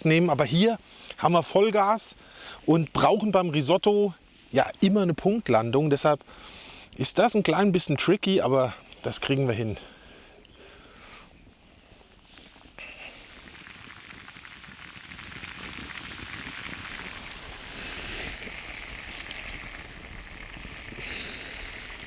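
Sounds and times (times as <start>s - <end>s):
rice sizzling and bubbling in pan: 11.7s - 22.0s.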